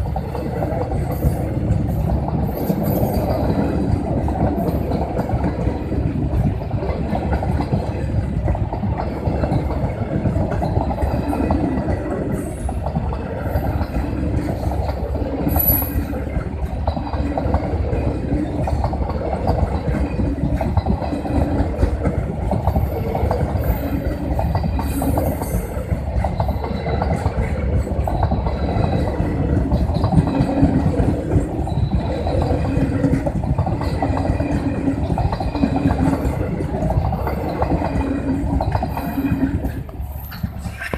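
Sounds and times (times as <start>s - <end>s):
train rumbling on rails: 0.0s - 40.9s.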